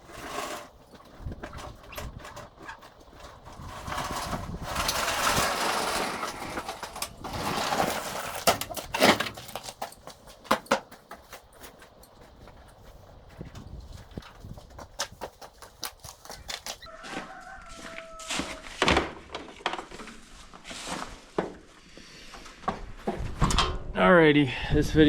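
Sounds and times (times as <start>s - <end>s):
scraping and rustling: 0.0s - 16.9s
sharp knocks and clatters: 0.9s - 12.8s.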